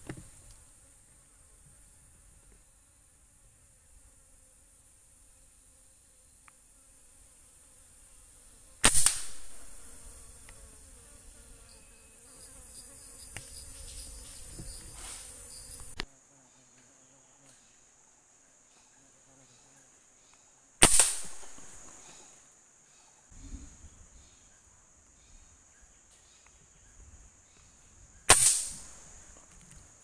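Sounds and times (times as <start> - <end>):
forest insects droning: 0.0 - 30.0
air rifle shot: 8.8 - 9.9, 20.8 - 22.0, 28.3 - 29.0.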